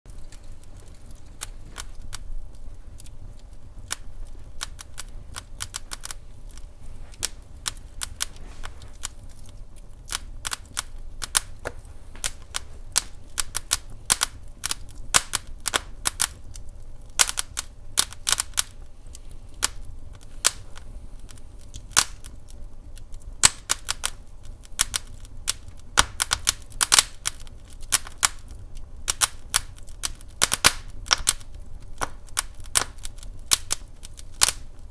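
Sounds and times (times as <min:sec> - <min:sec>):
wood fire crackling: 0:00.1 - 0:34.9.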